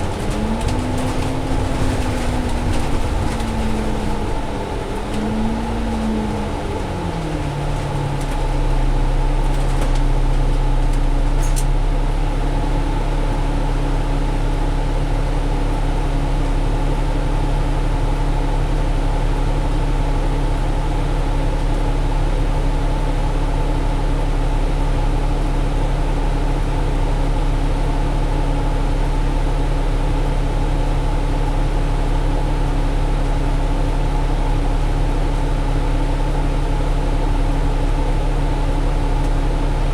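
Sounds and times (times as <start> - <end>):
road rumble: 0.0 - 13.0, 33.0 - 39.9
bus engine drone: 0.0 - 16.5, 31.4 - 39.9.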